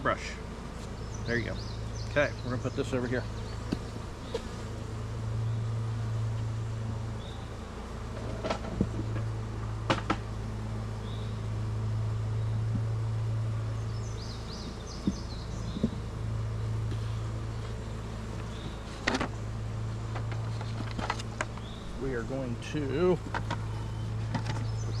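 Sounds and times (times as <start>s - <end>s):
honeybees buzzing: 0.0s - 25.0s
sharp clicks and knocks: 8.2s - 10.3s, 20.1s - 21.7s, 23.2s - 23.6s.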